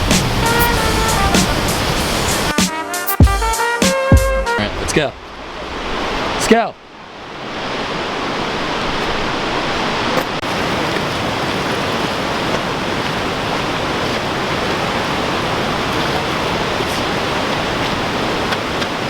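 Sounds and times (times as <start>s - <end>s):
waterfall roaring: 0.0s - 2.6s, 4.6s - 19.0s.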